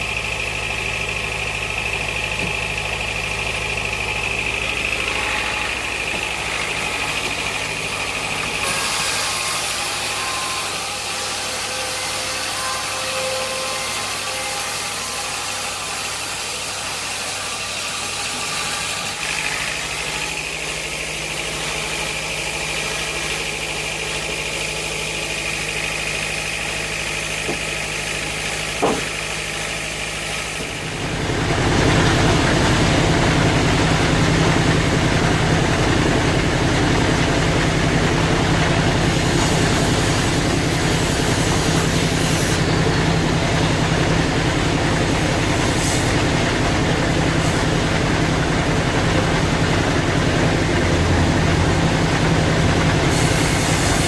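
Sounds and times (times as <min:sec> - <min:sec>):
sawmill machinery humming: 0:00.0 - 0:54.0
sharp knock: 0:28.8 - 0:29.2.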